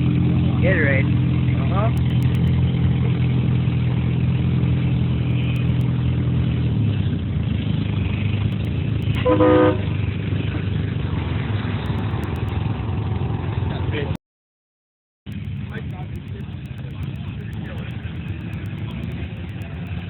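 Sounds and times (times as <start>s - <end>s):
car engine idling: 0.0s - 14.1s, 15.3s - 20.0s
car horn honk: 9.2s - 9.9s.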